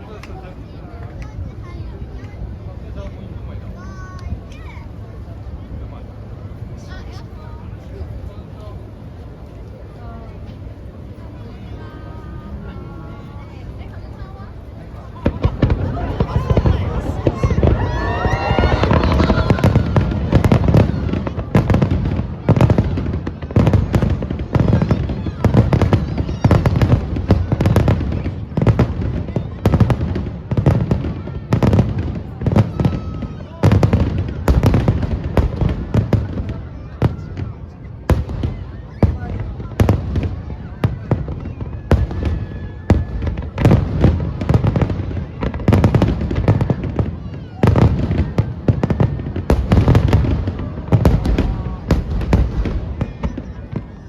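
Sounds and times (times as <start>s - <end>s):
fireworks bangs: 13.4s - 54.0s
low rumbling booms: 15.2s - 32.9s.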